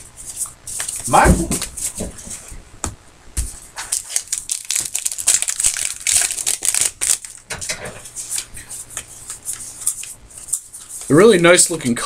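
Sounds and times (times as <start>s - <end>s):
plastic wrappers crinkling: 3.8s - 7.5s.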